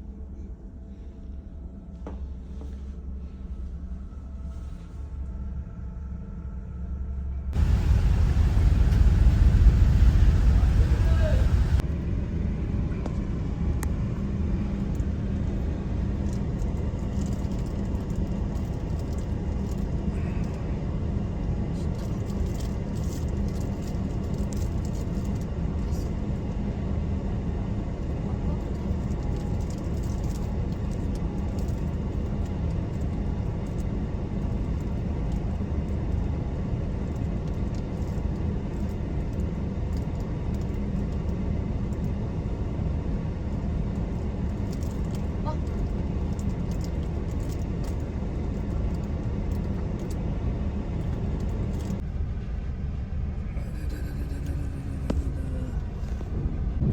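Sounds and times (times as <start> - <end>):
engine rumbling: 7.6 - 12.9, 53.4 - 56.9.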